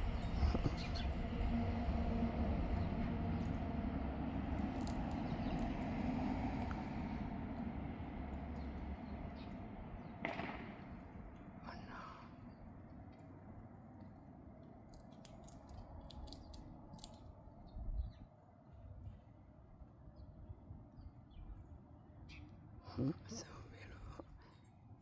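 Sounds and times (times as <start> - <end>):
low rumble: 0.0 - 14.4.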